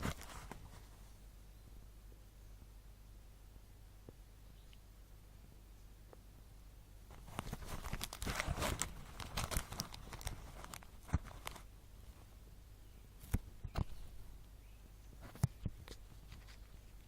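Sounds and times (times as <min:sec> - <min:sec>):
plastic packaging crinkling: 0:00.0 - 0:00.7, 0:07.1 - 0:11.7.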